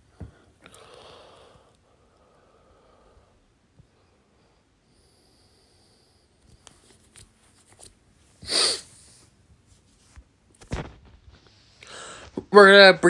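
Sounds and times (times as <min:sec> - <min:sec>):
nasal burst of breath: 0:08.4 - 0:09.2.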